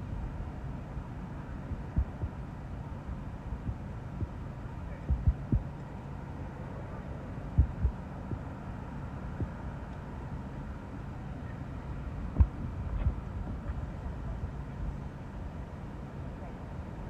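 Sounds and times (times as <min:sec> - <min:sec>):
gusty wind buffeting microphone: 0:00.0 - 0:05.8, 0:07.5 - 0:08.6, 0:11.7 - 0:16.1.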